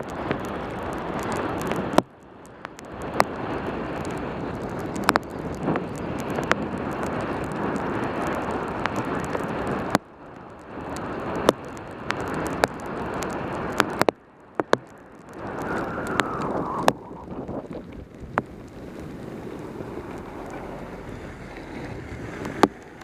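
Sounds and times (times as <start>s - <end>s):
rain noise: 0.0s - 23.0s
raindrops ticking on camera: 0.0s - 23.0s
wind rushing: 15.4s - 23.0s.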